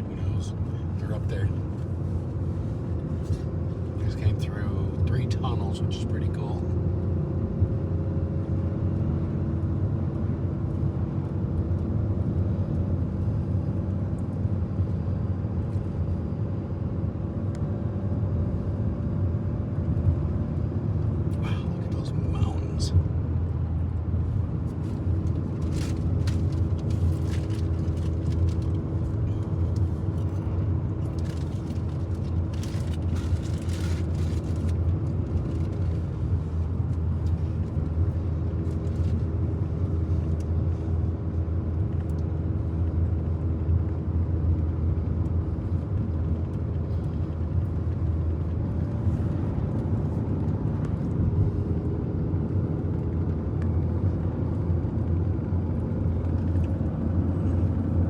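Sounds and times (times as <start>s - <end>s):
truck engine and road noise: 0.0s - 58.0s.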